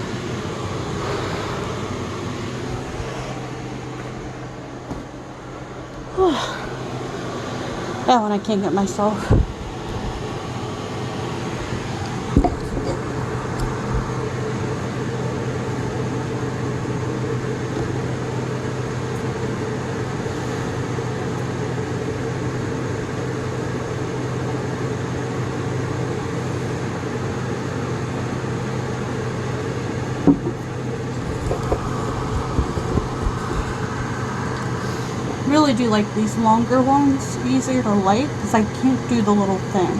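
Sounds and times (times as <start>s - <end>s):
appliance electrical hum: 0.0s - 39.9s
small knocks: 30.2s - 30.6s.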